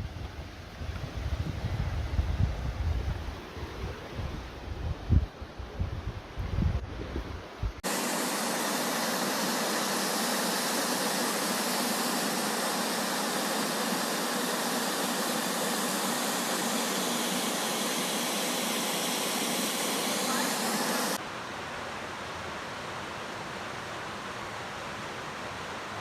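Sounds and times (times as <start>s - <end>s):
wind buffeting microphone: 0.0s - 7.8s
flowing water rushing: 7.8s - 26.0s.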